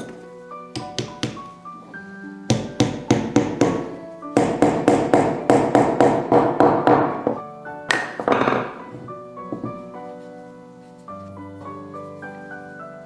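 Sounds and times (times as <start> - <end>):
background music: 0.0 - 13.0
hammering on wood: 0.7 - 1.5, 2.5 - 8.8.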